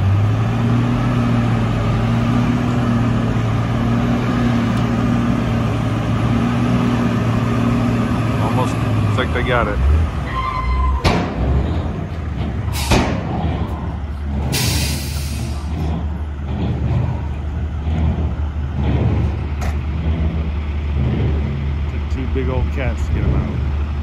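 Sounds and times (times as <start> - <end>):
diesel engines droning: 0.0 - 24.0
air hiss burst: 14.5 - 15.6.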